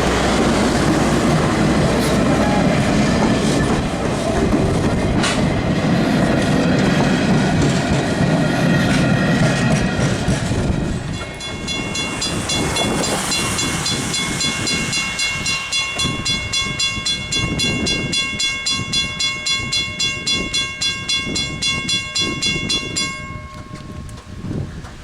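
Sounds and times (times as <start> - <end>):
steam locomotive exhaust beats: 0.0 - 25.0
steady high tones: 10.9 - 24.1.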